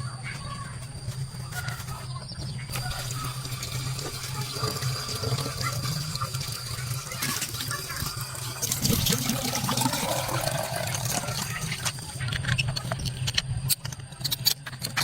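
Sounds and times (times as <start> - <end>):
steady low hum: 0.0 - 15.0
running water: 2.7 - 13.0.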